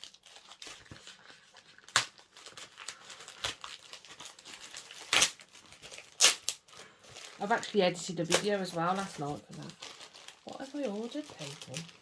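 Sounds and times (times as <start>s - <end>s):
packaging crinkling: 0.0s - 12.0s
packaging ripping: 0.0s - 12.0s.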